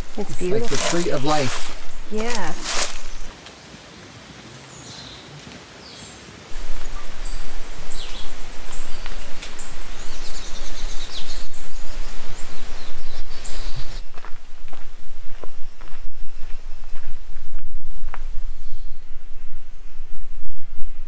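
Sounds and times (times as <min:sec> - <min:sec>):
outdoor rustle: 0:00.0 - 0:18.8
birds whistling: 0:06.6 - 0:14.1.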